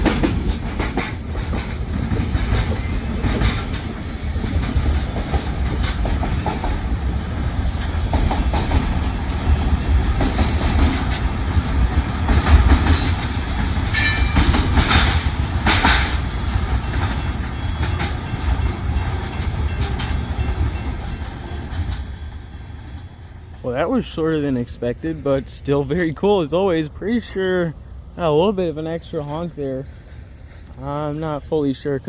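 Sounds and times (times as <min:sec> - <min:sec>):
wheels clacking over rail joints: 0:00.0 - 0:26.5
train cars rumbling past: 0:00.0 - 0:32.0
high-pitched wheel squeals: 0:12.9 - 0:14.5.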